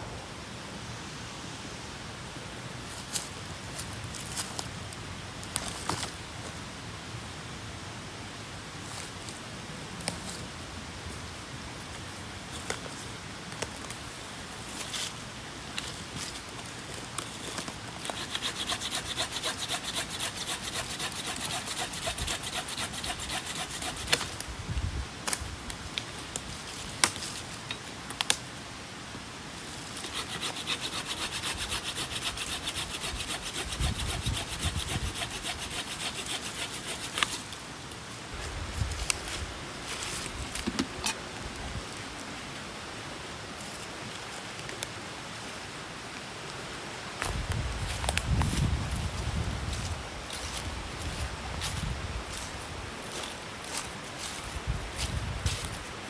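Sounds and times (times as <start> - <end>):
saw cutting through wood: 18.0 - 24.3, 30.0 - 37.4.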